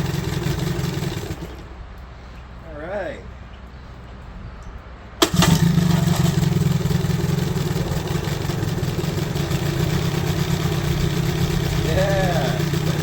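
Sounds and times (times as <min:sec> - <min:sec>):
outboard motor running: 0:00.0 - 0:01.9, 0:05.2 - 0:13.0.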